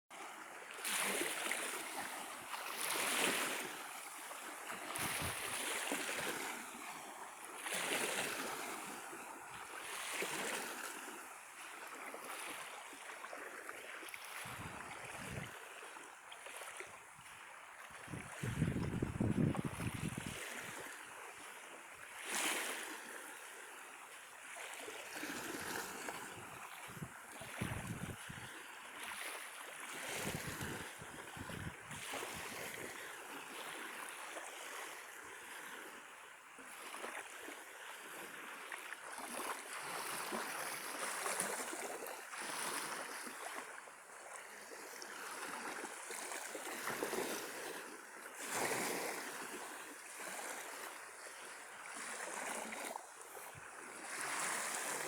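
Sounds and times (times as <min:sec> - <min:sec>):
small waves washing onto shore: 0:00.1 - 0:55.0
wind gusts buffeting microphone: 0:18.1 - 0:20.4, 0:26.9 - 0:28.3, 0:30.2 - 0:32.0.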